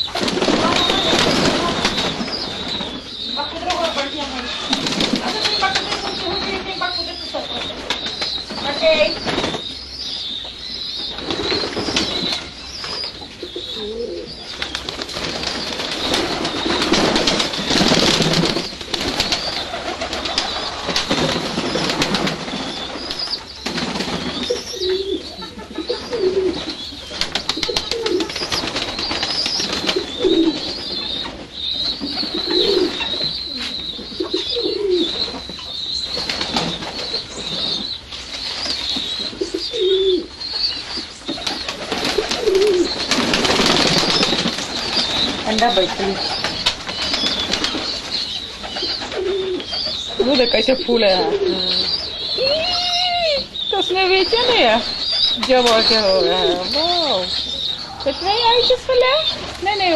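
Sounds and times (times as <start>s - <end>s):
doves cooing: 0.0s - 59.9s.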